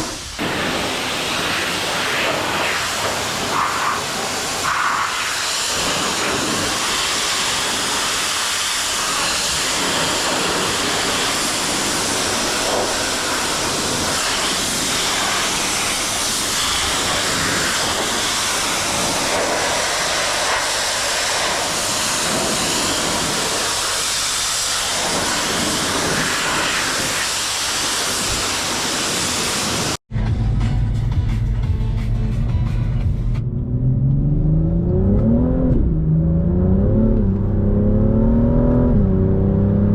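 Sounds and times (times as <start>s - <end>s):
high-pressure water spray hissing: 0.0s - 30.0s.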